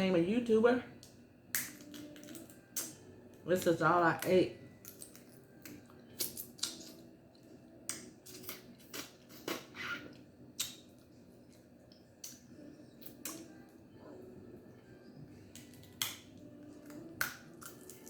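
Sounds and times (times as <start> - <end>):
crab shells cracking: 1.5 - 3.0.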